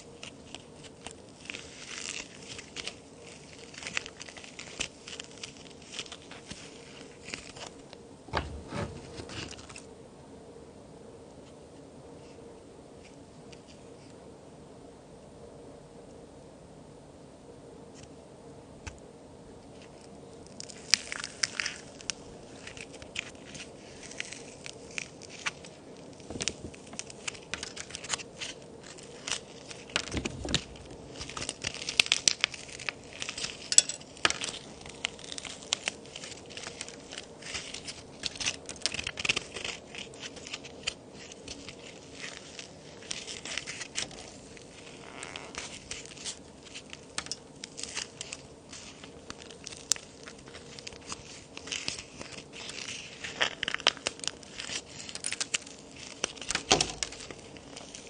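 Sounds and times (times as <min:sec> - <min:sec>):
dry cookies snapping and crumbling: 0:00.1 - 0:07.8, 0:19.8 - 0:58.0.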